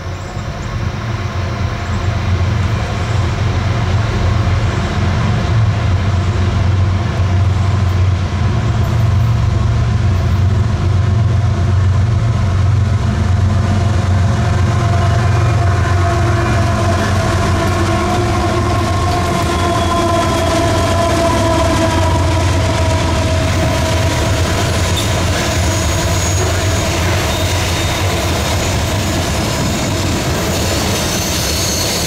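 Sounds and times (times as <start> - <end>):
train wheels rumbling on rails: 0.0 - 32.0
high-pitched squeal: 14.5 - 32.0.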